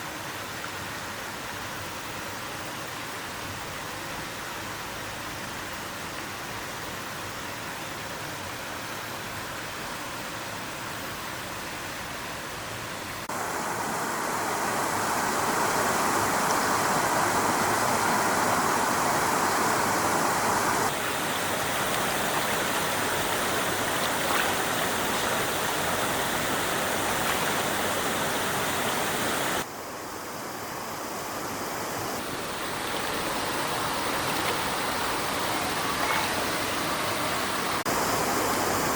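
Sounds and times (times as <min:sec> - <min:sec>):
stream water running: 0:00.0 - 0:38.9.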